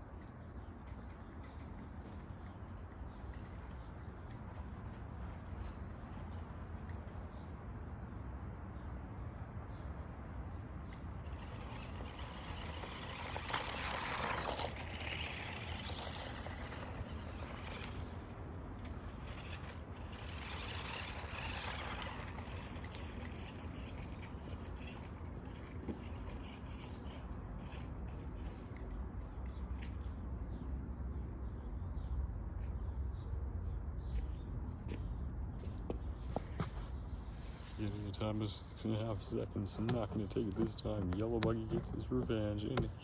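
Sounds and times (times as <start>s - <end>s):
toy car motor and tyres: 0.0s - 7.5s, 10.8s - 30.7s.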